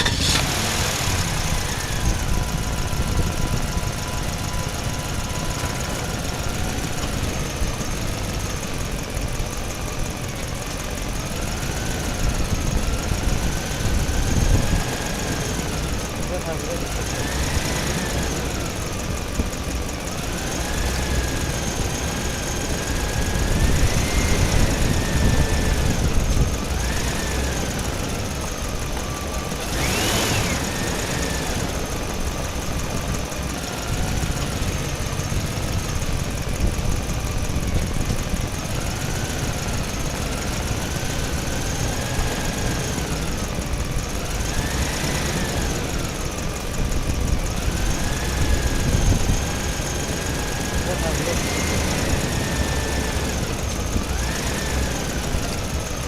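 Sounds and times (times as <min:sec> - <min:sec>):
engine revving: 0:00.0 - 0:56.0.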